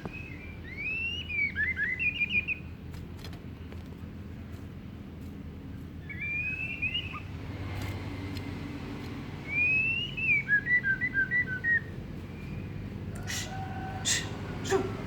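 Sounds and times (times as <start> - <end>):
bird singing whistled phrases: 0.0 - 2.6, 6.0 - 7.2, 9.5 - 12.6.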